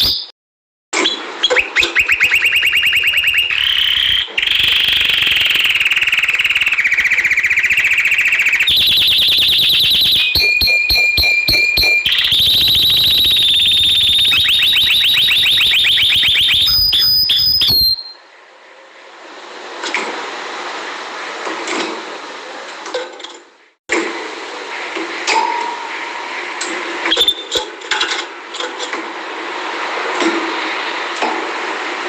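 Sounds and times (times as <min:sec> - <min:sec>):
canary singing trills: 0:01.4 - 0:18.2.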